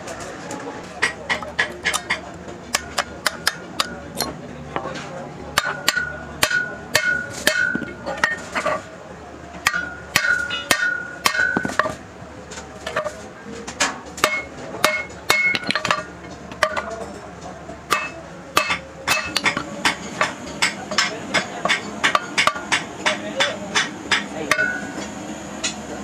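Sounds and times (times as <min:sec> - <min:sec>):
hammer blows on metal: 0:14.2 - 0:16.9, 0:17.9 - 0:25.8.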